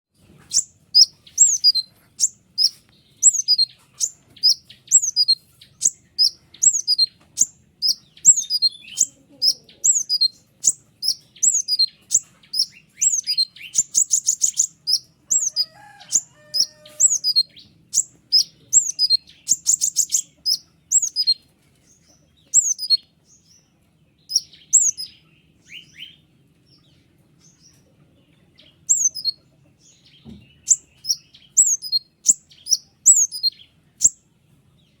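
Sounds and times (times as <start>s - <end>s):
fast rattling bird trill: 0.4s - 21.4s, 22.6s - 23.0s, 24.3s - 25.1s, 28.9s - 29.3s, 30.7s - 34.2s
songbird singing high notes: 0.5s - 21.4s, 22.6s - 23.0s, 24.3s - 25.1s, 28.9s - 29.3s, 30.6s - 34.2s.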